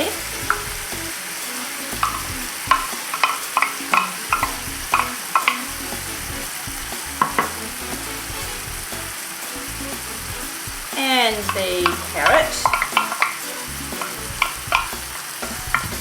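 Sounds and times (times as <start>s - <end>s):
meat sizzling in a frying pan: 0.0s - 16.0s
wooden spoon knocking on pan: 2.0s - 7.6s, 10.3s - 13.4s, 14.0s - 16.0s.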